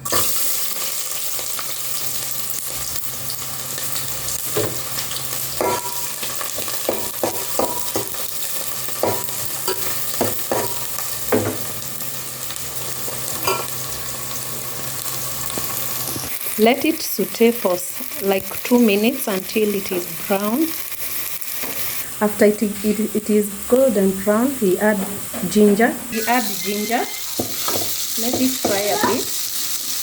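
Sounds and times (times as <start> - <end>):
onion sizzling in hot oil: 0.0 - 30.0
utensil scraping against pot: 26.1 - 29.6.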